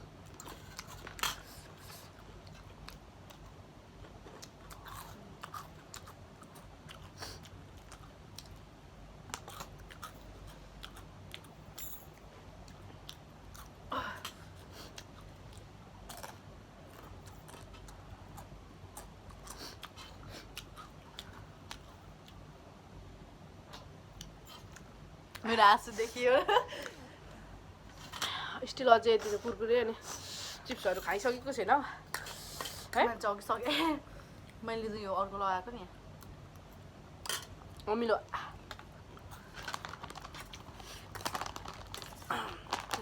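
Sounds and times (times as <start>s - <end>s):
chewing and crunching snacks: 0.0s - 22.7s, 23.5s - 25.5s, 36.2s - 43.0s.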